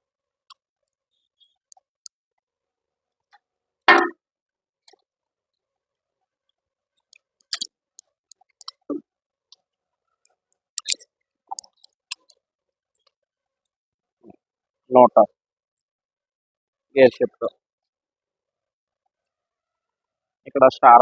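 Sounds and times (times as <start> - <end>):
metallic clicks and taps: 10.8 - 12.3.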